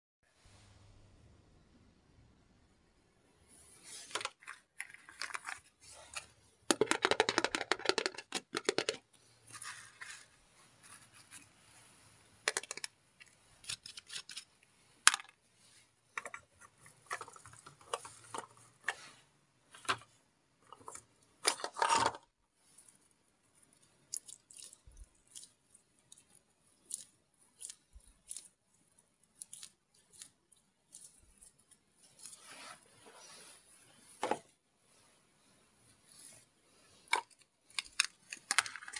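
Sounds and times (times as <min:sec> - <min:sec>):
plastic rattling: 0:04.0 - 0:10.3, 0:12.5 - 0:15.4, 0:16.2 - 0:19.0, 0:19.7 - 0:22.3, 0:37.1 - 0:38.9
plastic toys clicking and clattering: 0:04.1 - 0:10.3, 0:12.4 - 0:15.4, 0:16.1 - 0:19.0, 0:19.7 - 0:22.3, 0:37.0 - 0:38.9.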